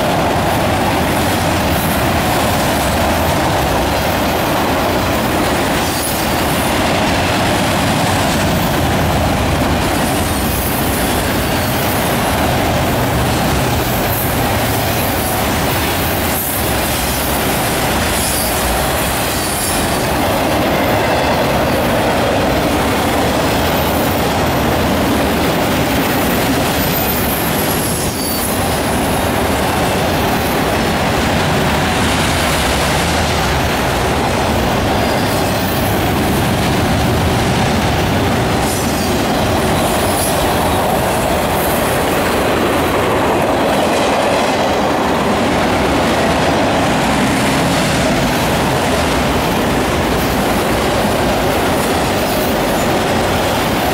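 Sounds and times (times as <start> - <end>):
train wheels rumbling on rail: 0.0 - 53.9
high-pitched wheel squeal: 26.8 - 28.6.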